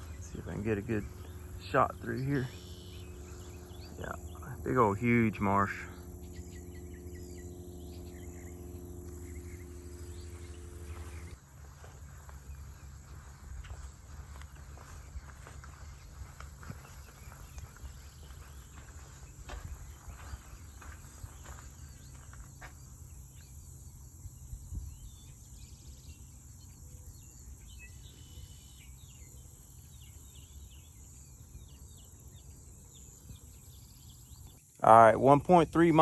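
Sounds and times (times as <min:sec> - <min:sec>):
bird chirping: 0:00.0 - 0:11.4, 0:24.7 - 0:36.0
high-pitched insect drone: 0:00.0 - 0:11.4
footsteps: 0:10.8 - 0:22.8.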